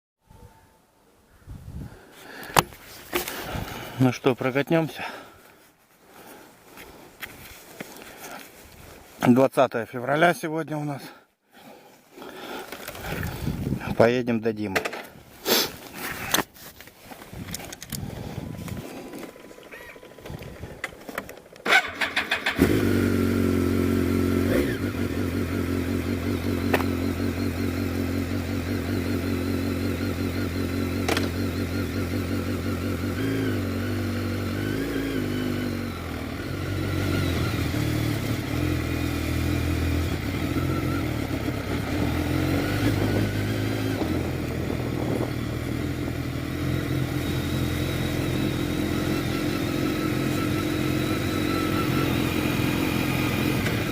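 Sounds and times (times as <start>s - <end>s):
motorcycle engine starting and idling: 17.4s - 53.9s.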